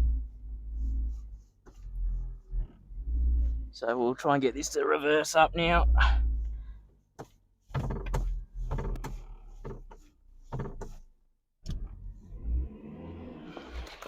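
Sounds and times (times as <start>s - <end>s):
clutch pedal clunks and knocks: 7.1s - 11.0s.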